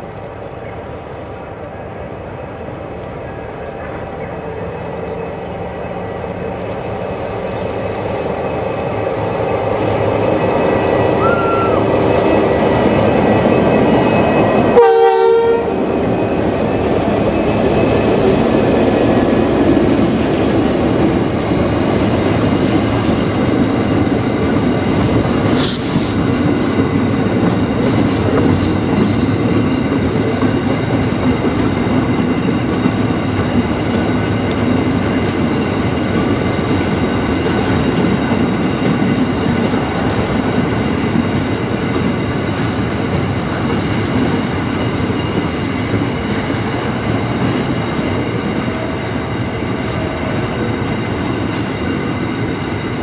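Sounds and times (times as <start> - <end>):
locomotive engine passing: 0.0 - 53.0
train horn note: 14.7 - 15.8.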